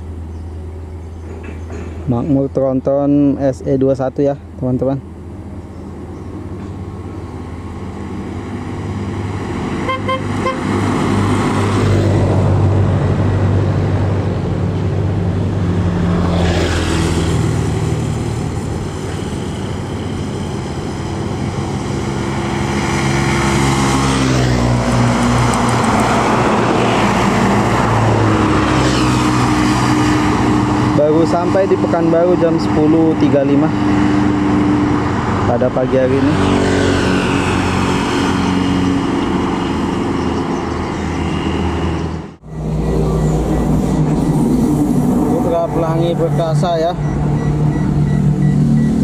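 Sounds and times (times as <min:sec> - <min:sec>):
heavy vehicle passing: 0:04.4 - 0:49.0
coach passing by: 0:06.3 - 0:49.0
vehicle horn: 0:09.8 - 0:10.8.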